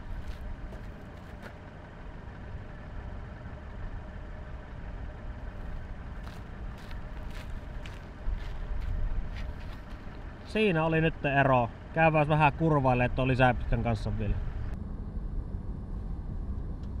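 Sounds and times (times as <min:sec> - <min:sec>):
footsteps on gravel: 0:00.0 - 0:01.6, 0:05.6 - 0:10.3
car engine idling: 0:00.0 - 0:17.0.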